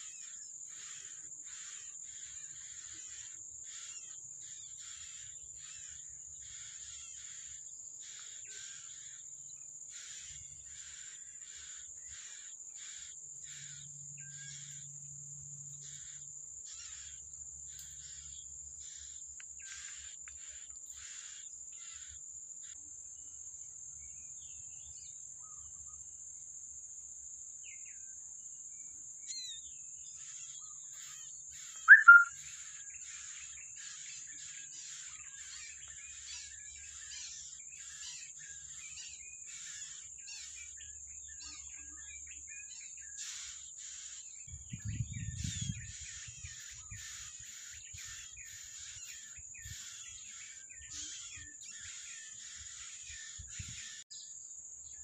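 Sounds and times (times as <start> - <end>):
small birds chirping: 0.0 - 26.6, 27.3 - 55.0
high-pitched drone: 31.9 - 32.3.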